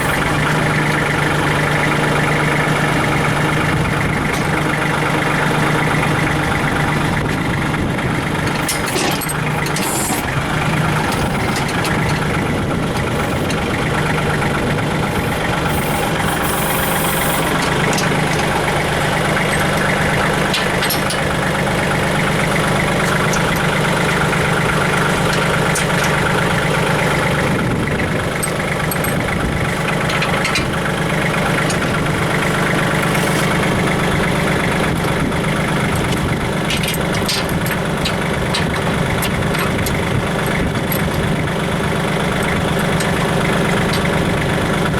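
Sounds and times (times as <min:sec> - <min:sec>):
tractor diesel engine idling: 0:00.0 - 0:44.9.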